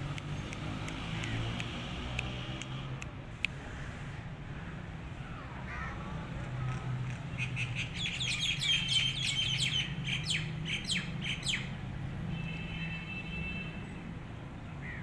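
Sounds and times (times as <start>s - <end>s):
small birds chirping: 7.1s - 11.8s.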